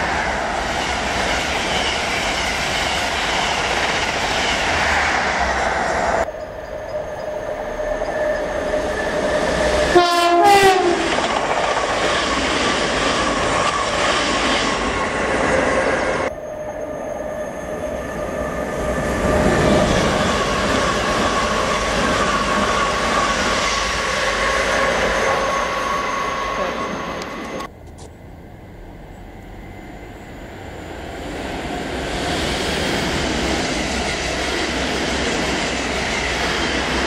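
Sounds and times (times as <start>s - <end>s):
electric train passing with whine: 0.0s - 37.0s
trains rumbling on rails: 0.0s - 37.0s
train horn: 9.6s - 11.2s.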